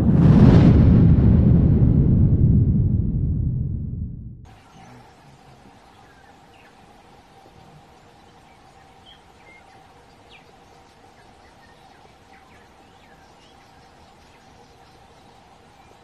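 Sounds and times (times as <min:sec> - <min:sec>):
steady hum: 0:00.0 - 0:16.0
background hiss: 0:04.5 - 0:16.0
faint bird chirps: 0:04.5 - 0:16.0.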